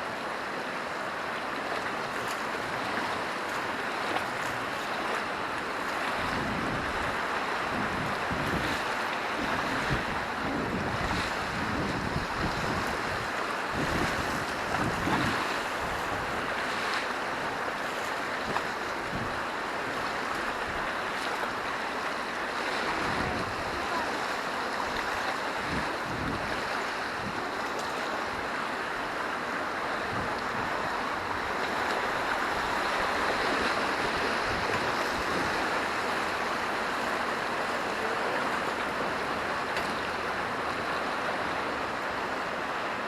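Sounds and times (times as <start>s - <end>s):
river rushing: 0.0s - 43.0s
wind buffeting microphone: 6.2s - 8.8s, 9.4s - 16.5s, 22.9s - 24.0s, 25.0s - 27.5s, 30.0s - 36.4s.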